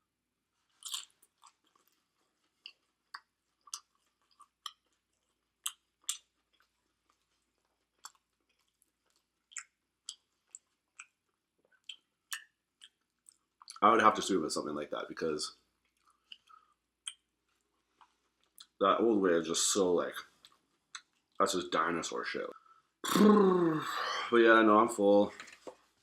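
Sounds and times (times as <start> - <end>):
person chewing food: 0.6 - 13.8, 15.8 - 18.8.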